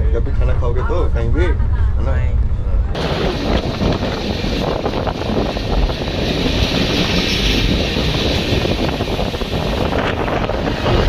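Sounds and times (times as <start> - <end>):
wind buffeting microphone: 1.4 - 11.0
train coaches rumbling on track: 2.9 - 11.0.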